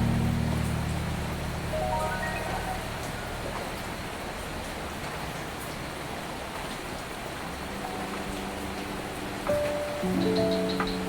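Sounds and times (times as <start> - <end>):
soft sustained music notes: 0.0 - 4.4, 7.7 - 11.0
rain falling: 0.0 - 11.0.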